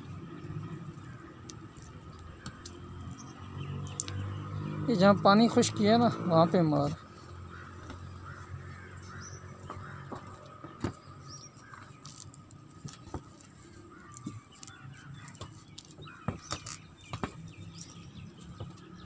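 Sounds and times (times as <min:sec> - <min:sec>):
birds chirping: 0:00.0 - 0:19.0
sharp knocks: 0:15.4 - 0:17.5.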